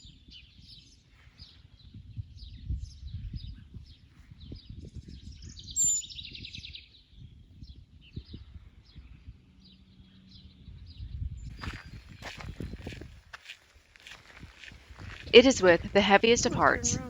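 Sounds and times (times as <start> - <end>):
wild birds singing and chirping: 0.0 - 13.0, 15.1 - 17.0
low uneven rumble: 15.3 - 17.0.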